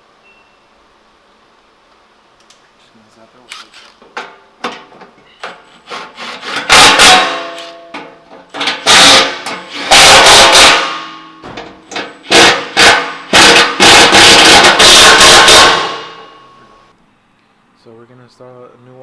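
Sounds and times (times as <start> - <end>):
impact wrench rattling bursts: 3.6 - 16.5.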